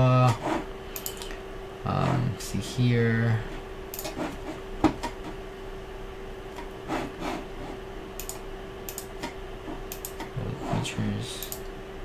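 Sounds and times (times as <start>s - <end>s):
steady electrical hum: 0.0s - 12.0s
sharp clicks: 8.2s - 9.1s, 9.9s - 10.3s.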